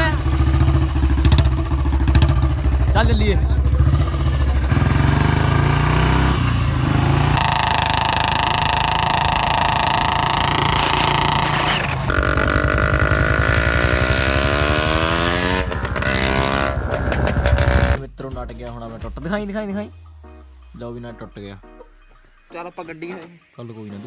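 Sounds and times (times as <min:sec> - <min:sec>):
motorcycle engine passing: 0:00.0 - 0:18.0.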